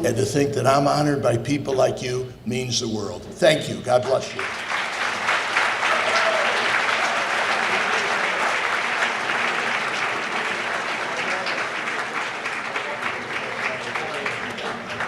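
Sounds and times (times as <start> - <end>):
crowd clapping: 4.1 - 15.0.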